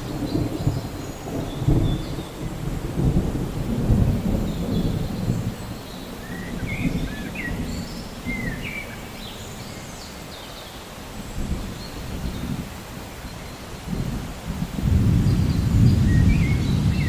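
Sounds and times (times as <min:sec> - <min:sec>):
rolling thunder rumble: 0:00.0 - 0:09.2, 0:13.8 - 0:17.0
steady rain: 0:00.0 - 0:17.0.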